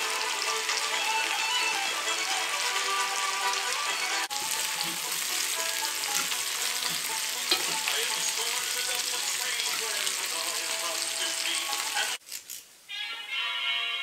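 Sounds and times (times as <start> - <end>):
background music: 0.0 - 12.2, 12.9 - 14.0
food sizzling in a skillet: 0.0 - 12.9
fork scraping a pan: 4.8 - 5.2, 6.0 - 7.9
metal click on pan: 6.2 - 7.9.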